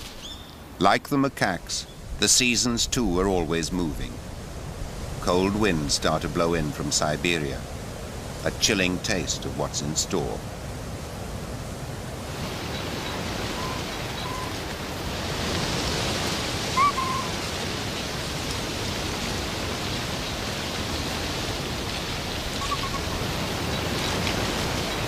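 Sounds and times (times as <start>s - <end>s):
wind rushing through forest: 0.0s - 25.0s
brief high calls: 13.5s - 14.6s, 16.7s - 17.5s, 22.6s - 23.3s.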